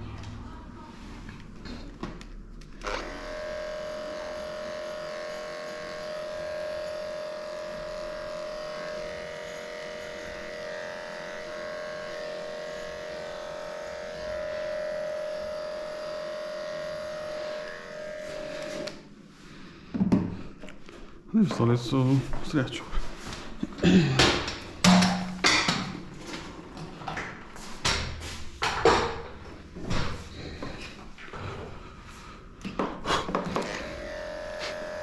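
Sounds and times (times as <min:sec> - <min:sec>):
electric clippers buzzing: 0:02.8 - 0:19.1, 0:33.4 - 0:35.0.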